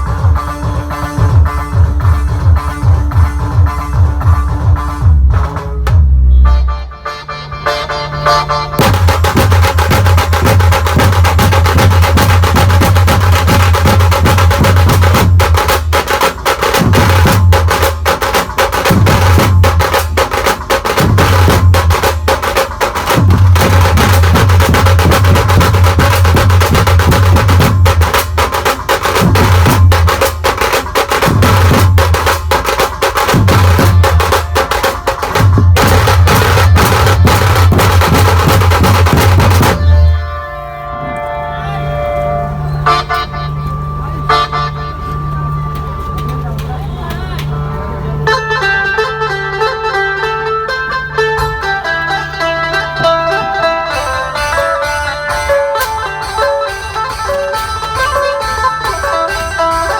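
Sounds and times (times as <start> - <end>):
heavy deep bass: 0.0 - 16.0, 33.3 - 54.2
dense drumming: 0.0 - 41.0
band playing folk-pop tune: 33.0 - 59.9.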